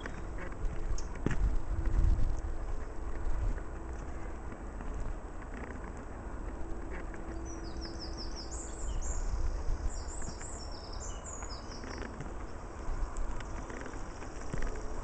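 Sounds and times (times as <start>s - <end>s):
songbird chirping: 6.9s - 15.0s.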